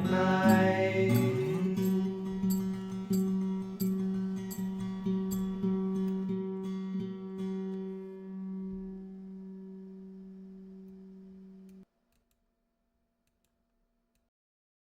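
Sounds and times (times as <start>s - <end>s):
acoustic guitar note ringing: 0.0s - 11.7s.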